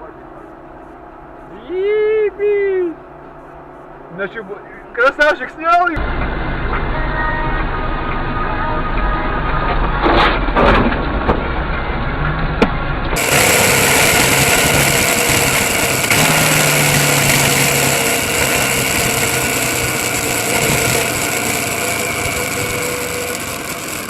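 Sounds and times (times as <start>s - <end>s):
car engine and road noise: 5.2s - 24.0s.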